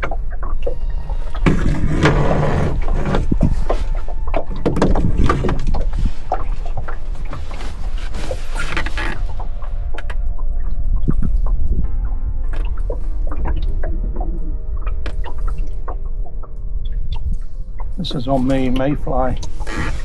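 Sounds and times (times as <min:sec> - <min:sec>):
water lapping against boat hull: 0:00.0 - 0:20.0
wind rumbling on microphone: 0:00.0 - 0:20.0.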